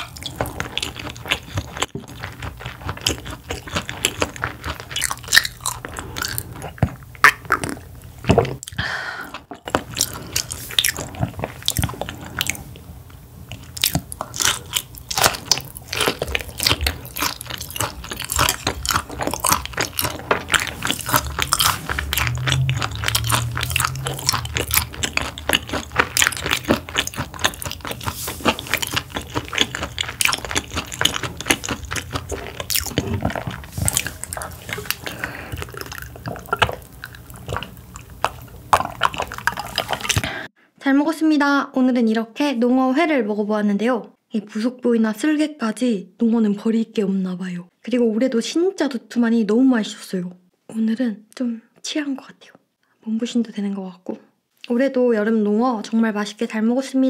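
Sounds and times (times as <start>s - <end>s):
chewing and biting fish: 0.0s - 12.8s, 13.5s - 40.5s
crisp crunches: 13.8s - 40.3s
wet mouth clicks: 16.6s - 40.5s.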